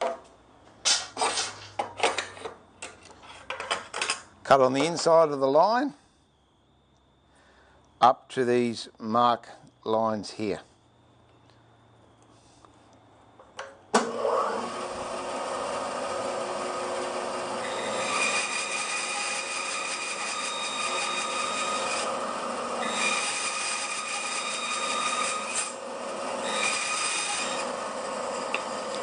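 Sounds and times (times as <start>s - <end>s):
bandsaw blade cutting wood: 14.0s - 29.0s
bandsaw running: 14.0s - 29.0s.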